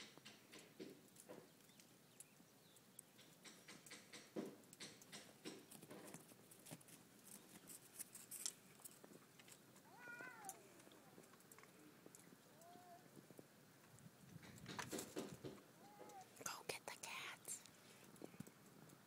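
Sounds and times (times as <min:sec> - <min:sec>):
faint clicks: 0:08.4 - 0:14.8
faint cat cries: 0:09.8 - 0:11.2, 0:12.5 - 0:13.1, 0:15.8 - 0:16.4.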